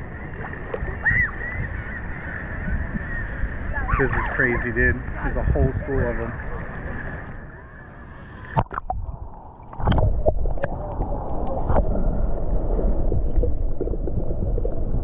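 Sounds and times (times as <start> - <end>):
shallow water sloshing: 0.0 - 15.0
sharp water splash: 8.1 - 10.8.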